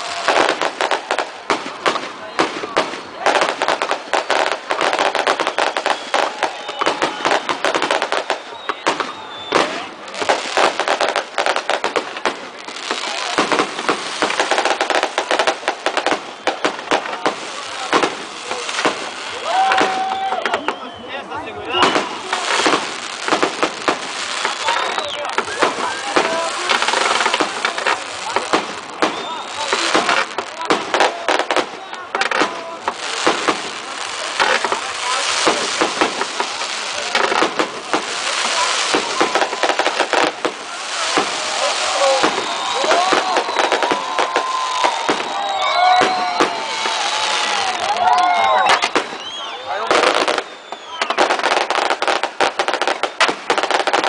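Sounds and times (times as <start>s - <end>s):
firecrackers cracking: 0.0s - 54.0s
continuous hissing rush: 9.2s - 20.4s, 21.0s - 50.6s.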